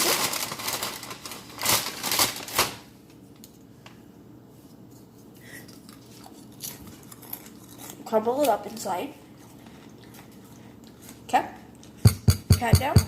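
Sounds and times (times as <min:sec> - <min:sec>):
packaging crinkling: 0:00.0 - 0:02.9.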